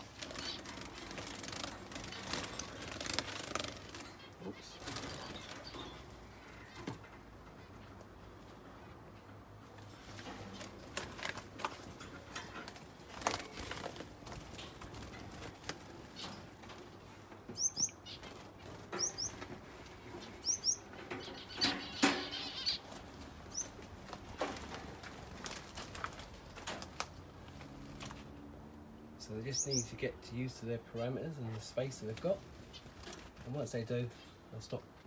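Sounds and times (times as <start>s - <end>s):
small birds' wings flapping: 0.0s - 6.2s, 9.7s - 17.2s, 18.1s - 28.4s, 32.1s - 33.8s
birds bouncing into mesh: 0.0s - 8.1s, 9.7s - 28.4s.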